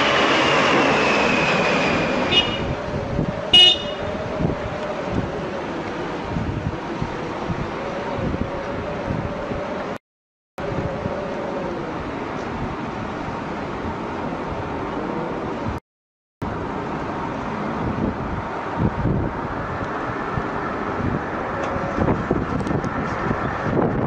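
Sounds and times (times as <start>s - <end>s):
aeroplane engine: 0.0s - 10.0s, 10.6s - 15.8s.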